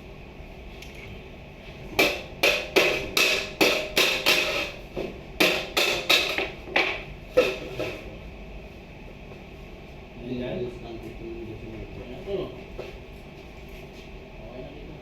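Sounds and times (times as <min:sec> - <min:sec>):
hammer blows ringing: 0:01.9 - 0:04.8, 0:05.4 - 0:06.5.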